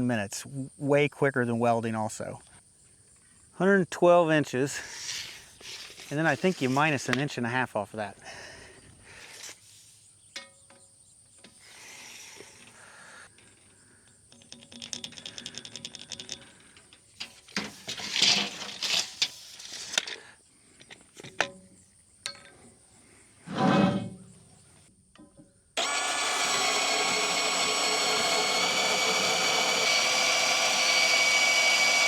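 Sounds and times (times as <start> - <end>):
rustling scraping noise: 4.9 - 7.4, 17.1 - 20.1, 23.4 - 24.6.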